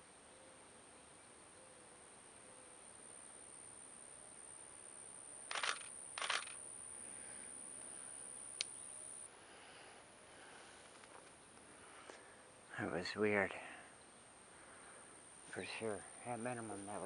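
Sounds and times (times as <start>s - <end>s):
faint high whine: 0.0s - 17.0s
camera shutter clicking: 5.5s - 6.6s.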